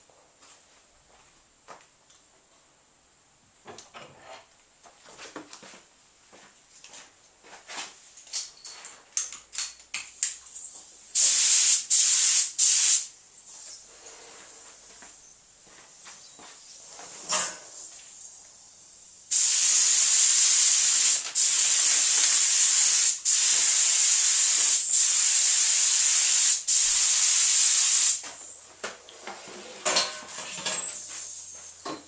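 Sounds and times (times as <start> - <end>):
paint spray hissing: 10.6 - 13.7, 19.3 - 28.2.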